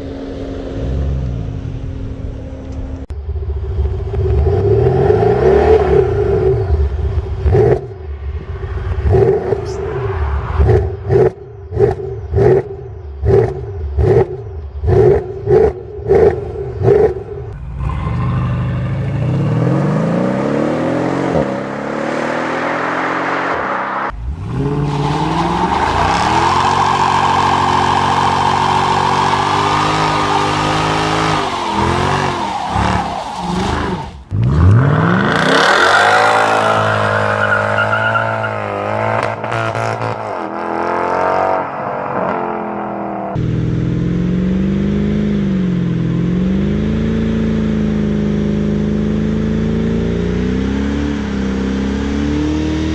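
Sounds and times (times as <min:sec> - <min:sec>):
car engine revving: 0:03.3 - 0:52.9
car accelerating hard: 0:09.0 - 0:52.9.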